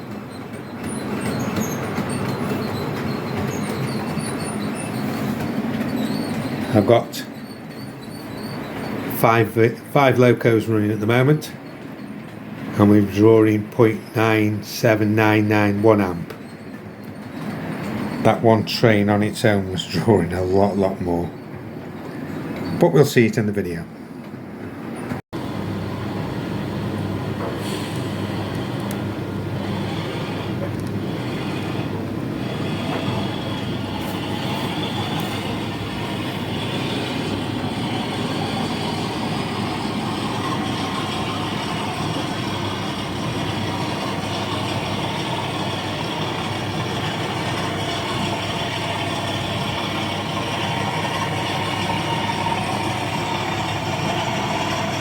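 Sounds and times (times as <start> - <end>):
model locomotive running: 0.0 - 21.3, 25.4 - 55.0.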